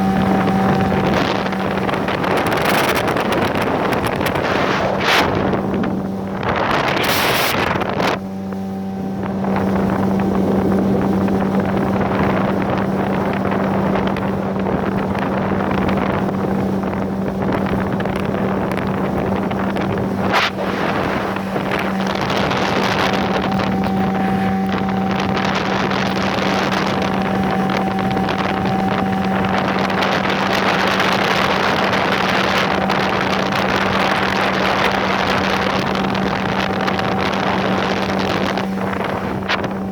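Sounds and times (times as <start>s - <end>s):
outboard motor running: 0.0s - 39.9s
water and wind noise: 0.0s - 39.9s.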